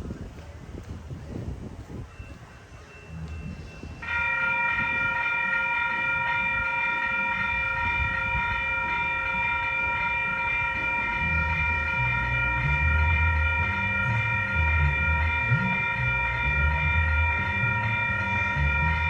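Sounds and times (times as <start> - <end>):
low rumble: 10.8 - 19.0.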